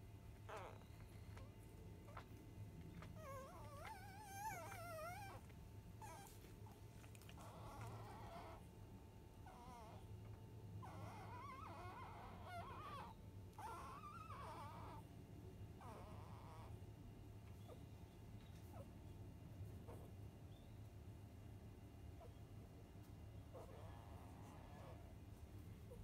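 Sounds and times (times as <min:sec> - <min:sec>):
puppy whining: 0:00.3 - 0:08.7, 0:09.4 - 0:15.2, 0:15.8 - 0:16.8, 0:17.4 - 0:19.0, 0:19.8 - 0:20.7, 0:22.2 - 0:26.0
puppies whimpering: 0:00.4 - 0:08.6, 0:09.5 - 0:10.0, 0:10.8 - 0:15.0, 0:15.8 - 0:16.8.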